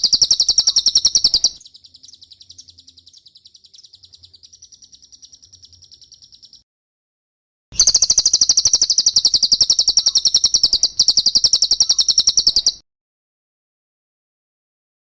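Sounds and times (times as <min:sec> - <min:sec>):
bird singing rapid high trill: 0:00.0 - 0:06.6, 0:07.8 - 0:12.8.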